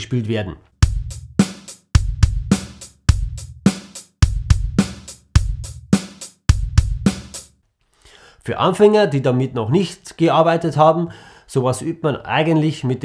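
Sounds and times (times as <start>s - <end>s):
drum kit rock groove: 0.8s - 7.5s.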